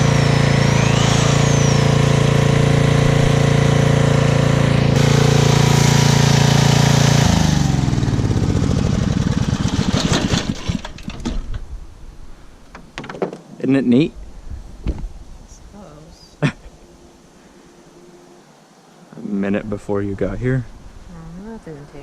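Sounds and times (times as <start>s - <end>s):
core drilling machine winding down: 0.0s - 11.1s.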